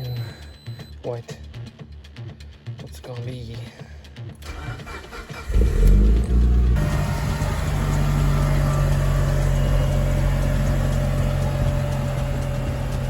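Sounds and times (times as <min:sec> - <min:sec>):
car engine idling: 0:04.4 - 0:13.0.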